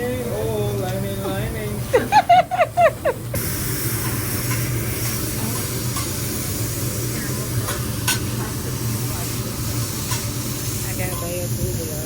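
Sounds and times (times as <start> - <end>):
food sizzling on a griddle: 0.0 - 12.0.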